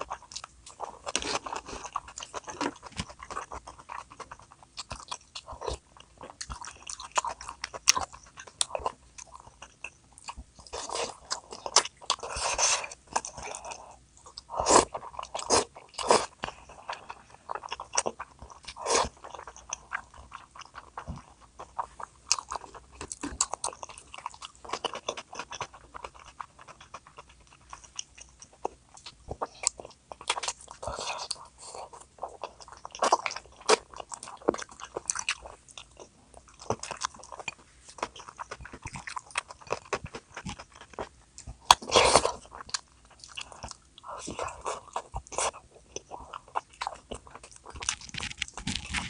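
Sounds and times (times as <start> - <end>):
person biting and chewing: 36.5 - 49.0.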